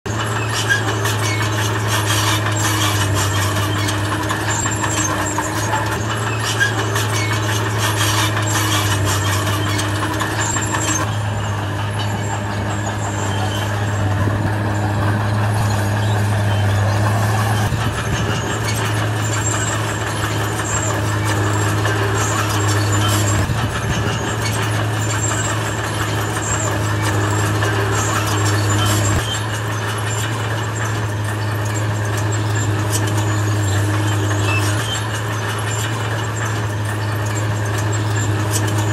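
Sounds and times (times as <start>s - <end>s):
bulldozer diesel engine droning: 0.0s - 38.9s
metallic clanks and scrapes: 0.1s - 38.9s.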